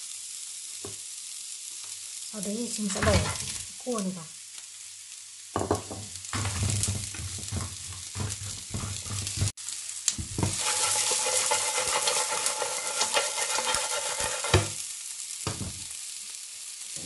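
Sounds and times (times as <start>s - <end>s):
food sizzling in oil: 0.0s - 17.0s
spatula knocking and scraping pan: 2.9s - 3.6s, 5.6s - 9.6s, 10.2s - 14.8s, 15.5s - 15.9s.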